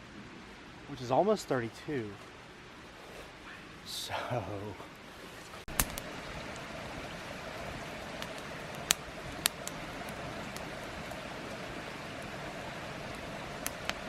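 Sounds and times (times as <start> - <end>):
creek water rushing: 3.7 - 14.0.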